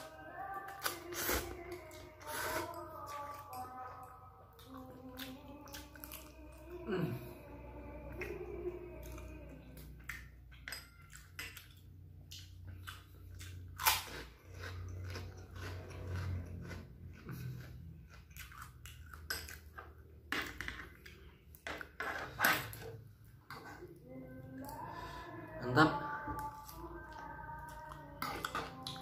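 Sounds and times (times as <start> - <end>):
chewing fried noodles: 0.0 - 6.8, 8.0 - 20.2.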